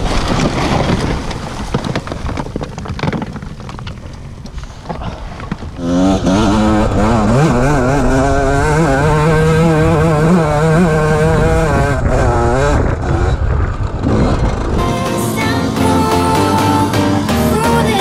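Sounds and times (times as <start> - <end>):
dirt bike engine revving: 5.8 - 18.0.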